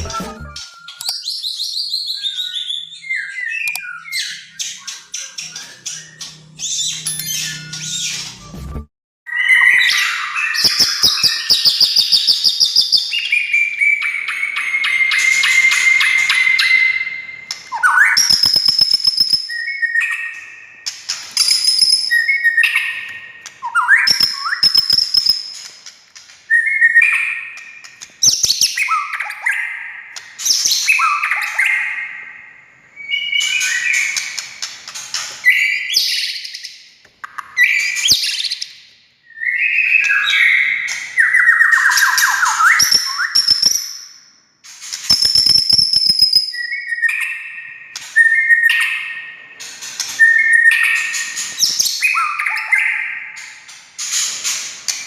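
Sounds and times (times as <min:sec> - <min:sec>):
bird singing whistled phrases: 0:00.0 - 0:08.5, 0:09.3 - 0:25.6, 0:33.0 - 0:34.4, 0:39.3 - 0:44.2, 0:45.1 - 0:49.3, 0:50.2 - 0:53.4
sharp clicks: 0:03.6 - 0:03.8.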